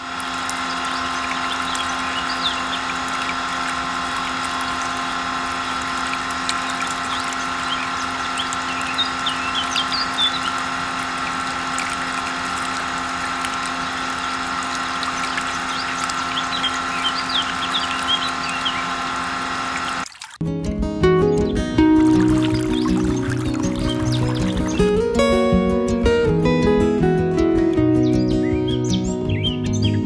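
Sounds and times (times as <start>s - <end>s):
small electric motor whining: 0.0s - 20.1s, 22.0s - 24.9s
faint bird chirps: 22.3s - 24.9s.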